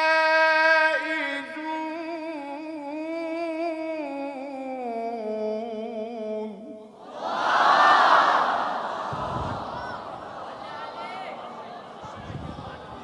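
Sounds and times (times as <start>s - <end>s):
man reciting melismatically: 0.0s - 7.1s.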